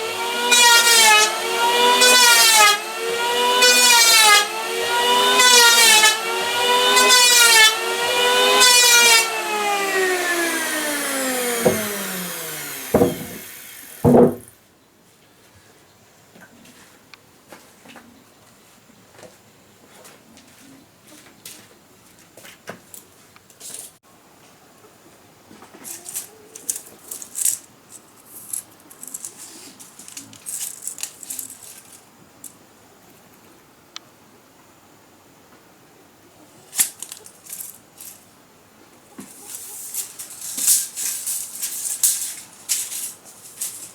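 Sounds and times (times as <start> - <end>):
power tool cutting wood: 0.0 - 14.5
scraping and rattling: 9.1 - 14.5, 28.4 - 32.0
sharp wooden knocks: 11.5 - 14.5.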